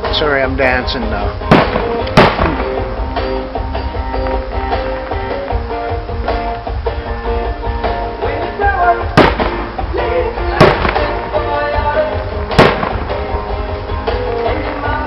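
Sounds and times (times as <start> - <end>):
live music: 0.0 - 15.0
fireworks bangs: 1.4 - 5.4, 9.1 - 15.0.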